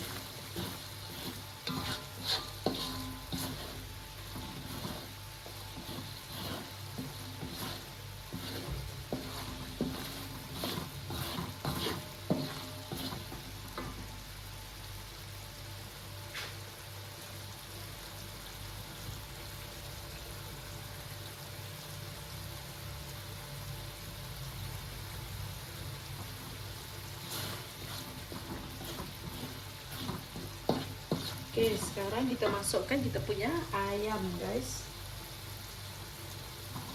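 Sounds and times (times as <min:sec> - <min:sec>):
utensil scraping and knocking pot: 0:00.0 - 0:14.1, 0:26.2 - 0:33.7
paste sizzling in oil: 0:00.0 - 0:36.9.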